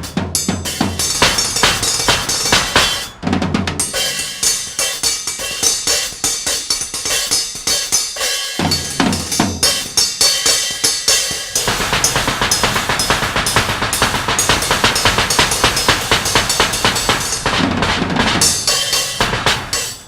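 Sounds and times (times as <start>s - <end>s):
fast drumming: 0.0s - 20.0s
metallic ringing: 0.0s - 20.0s
kick drum thumps: 11.5s - 19.8s.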